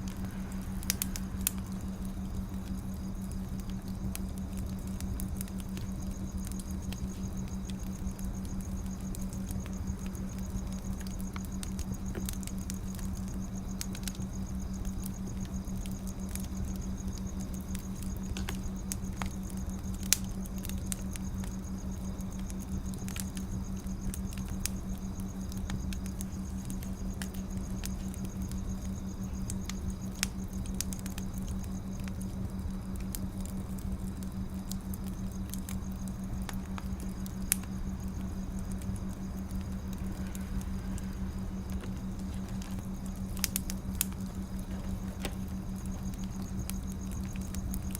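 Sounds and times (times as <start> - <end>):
steady low hum: 0.0 - 47.9
wood fire crackling and snapping: 0.0 - 47.9.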